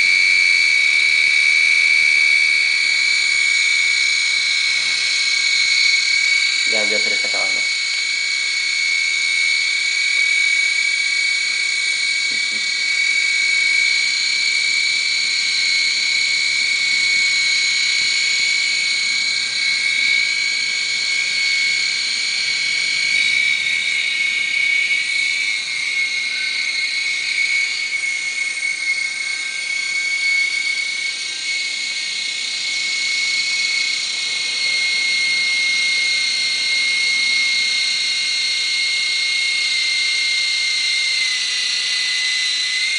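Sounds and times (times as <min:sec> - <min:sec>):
small rotor motors whining: 0:00.0 - 0:42.9.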